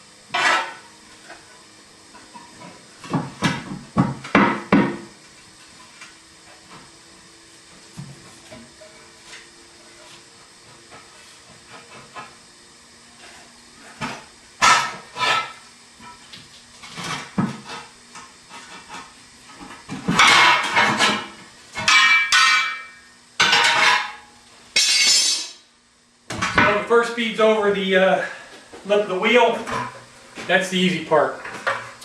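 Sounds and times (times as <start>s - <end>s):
tire bead scraping and squeaking: 0.3s - 1.5s, 13.2s - 21.0s.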